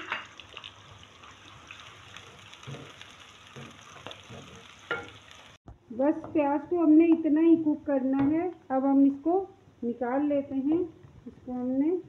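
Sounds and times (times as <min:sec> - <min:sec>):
vegetables sizzling in oil: 0:00.0 - 0:05.6
wooden spoon scraping and knocking pan: 0:02.1 - 0:05.3.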